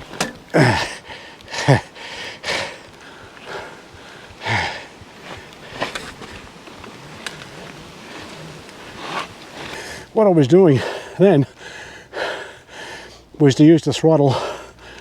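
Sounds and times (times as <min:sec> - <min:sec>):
man breathing hard and grunting: 0:00.2 - 0:02.8.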